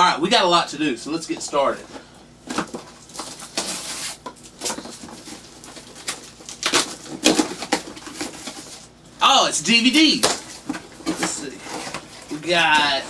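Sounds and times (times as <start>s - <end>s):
paper packaging ripping: 2.5s - 9.0s.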